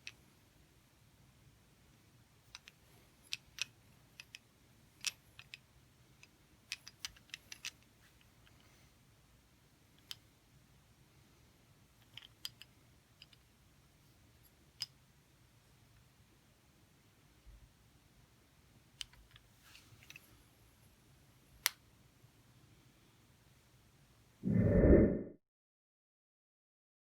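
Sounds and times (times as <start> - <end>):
quiet room hum: 0.0 - 25.3
light clicks and taps: 19.0 - 20.3.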